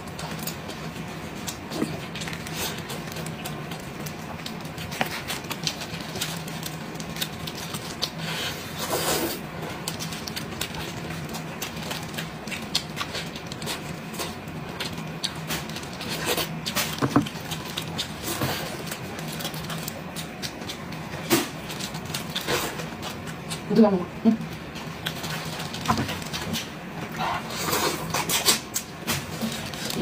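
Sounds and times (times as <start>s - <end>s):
close chewing and mouth smacks: 0.0s - 23.7s, 24.4s - 30.0s.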